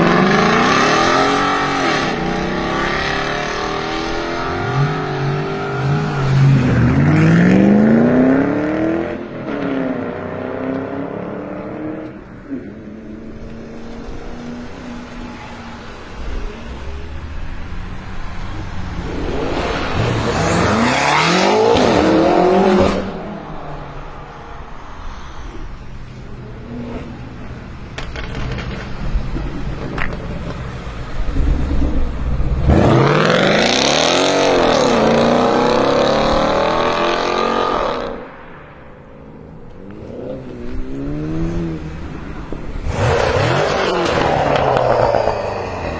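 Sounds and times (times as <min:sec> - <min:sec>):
car engine accelerating hard: 0:00.0 - 0:23.8, 0:27.9 - 0:38.3, 0:39.7 - 0:45.9.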